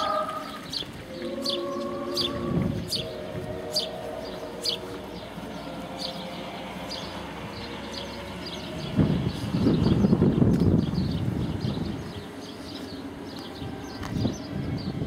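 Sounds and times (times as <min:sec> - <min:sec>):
faint held musical tones: 0:00.0 - 0:09.6.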